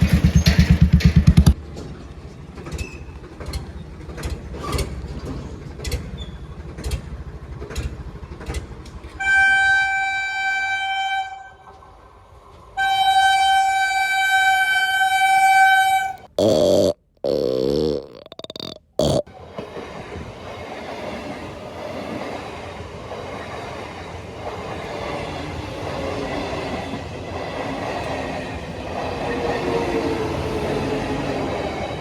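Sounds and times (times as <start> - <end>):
train wheels clacking on rails: 0.0 - 10.0, 19.4 - 32.0
locomotive horn blasts: 9.2 - 11.6, 12.8 - 16.2.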